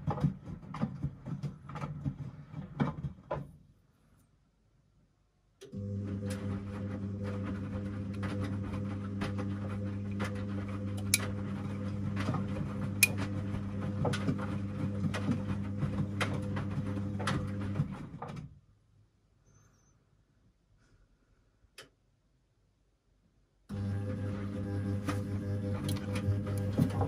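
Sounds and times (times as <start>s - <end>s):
washing machine running: 5.7s - 18.4s, 23.7s - 27.0s.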